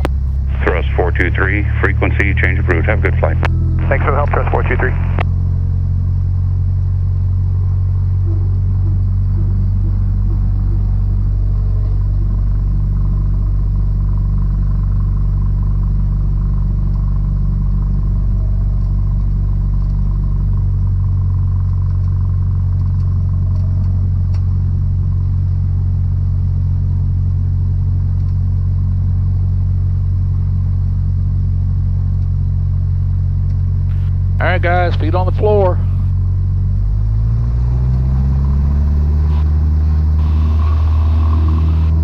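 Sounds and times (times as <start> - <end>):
aircraft piston engine drone: 0.0 - 6.2, 33.9 - 42.0.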